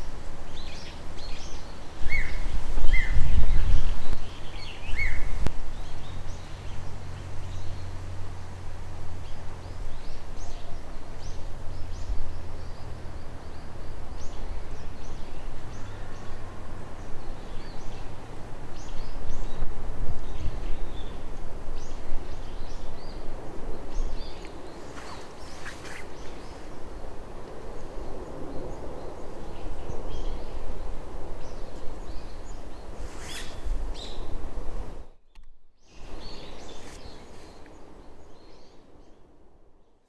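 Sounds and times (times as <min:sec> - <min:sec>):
outdoor background noise: 0:00.0 - 0:40.0
small birds chirping: 0:09.2 - 0:34.3, 0:35.1 - 0:39.3.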